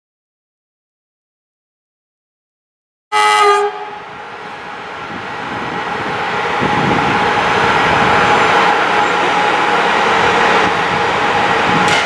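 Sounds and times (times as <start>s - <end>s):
train rumble and rail noise: 3.2s - 12.0s.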